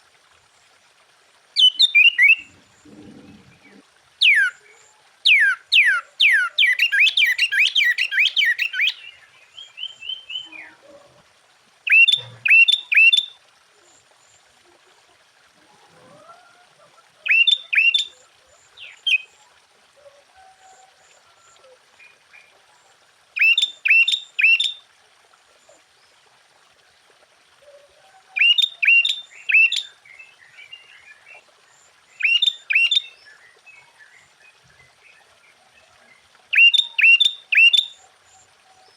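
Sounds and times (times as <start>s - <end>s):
bulbul singing: 1.6s - 2.5s, 5.3s - 10.7s, 11.9s - 13.3s, 17.3s - 18.1s, 32.2s - 33.1s, 36.5s - 37.9s.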